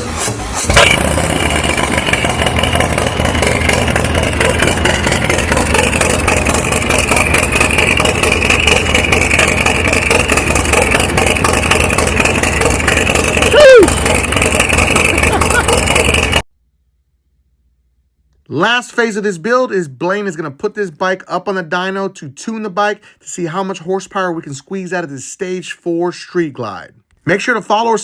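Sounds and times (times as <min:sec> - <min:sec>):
motorcycle engine idling: 0:00.7 - 0:16.4.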